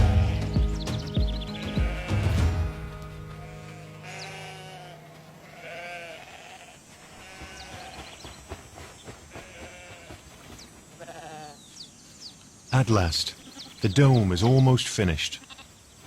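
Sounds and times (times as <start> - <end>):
sheep bleating: 0.0 - 0.8, 1.5 - 2.7, 3.4 - 8.0, 9.3 - 10.2, 11.0 - 11.6, 15.3 - 15.8
soft background music: 0.0 - 6.1.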